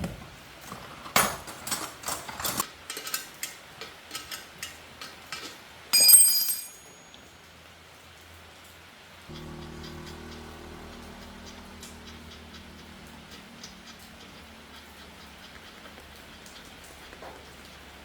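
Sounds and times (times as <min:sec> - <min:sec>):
metal tools tapping and clinking: 0:01.2 - 0:07.2
metallic clang: 0:06.0 - 0:07.0.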